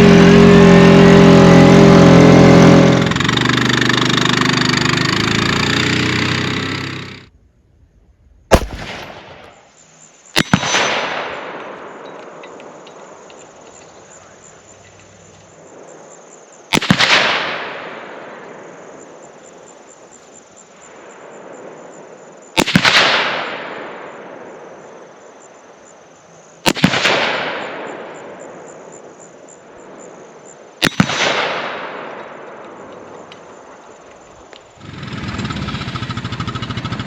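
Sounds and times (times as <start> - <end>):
gunshot echo: 8.5 - 9.7, 30.8 - 32.6
rifle shots: 8.5 - 9.7, 10.4 - 12.4, 16.7 - 18.2, 22.6 - 24.0, 26.7 - 27.9, 30.8 - 33.0.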